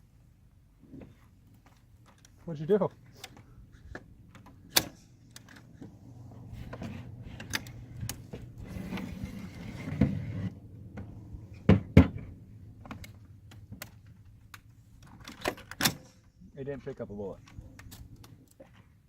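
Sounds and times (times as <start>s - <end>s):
low background rumble: 3.5s - 15.2s.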